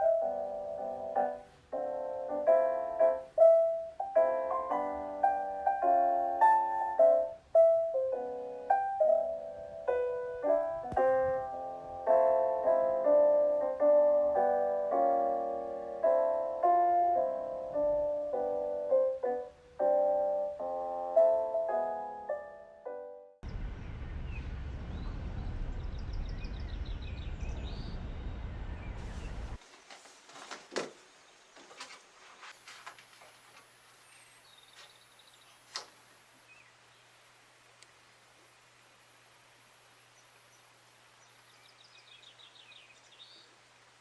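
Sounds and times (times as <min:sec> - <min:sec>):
solo piano melody: 0:00.0 - 0:23.4.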